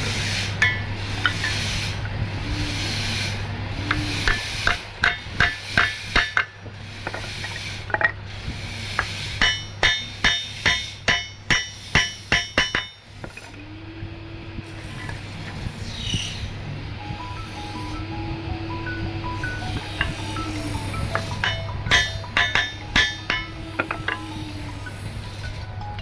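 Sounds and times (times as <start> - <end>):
rasping: 0.0 - 13.6, 19.3 - 26.0
hammer blows on wood: 3.8 - 13.4, 19.2 - 25.7.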